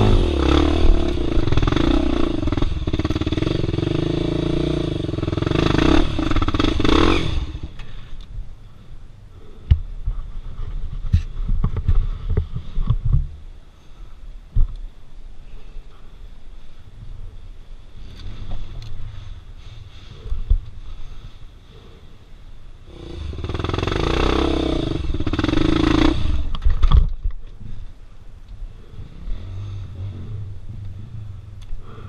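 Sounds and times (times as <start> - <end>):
dirt bike engine revving: 0.0 - 7.8, 22.9 - 26.6.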